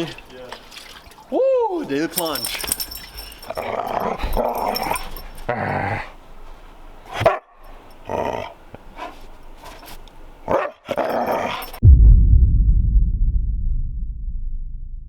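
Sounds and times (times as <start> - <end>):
dog barking and growling: 2.8 - 6.2, 7.1 - 9.2, 10.4 - 11.8
loud low rumble: 11.8 - 15.0.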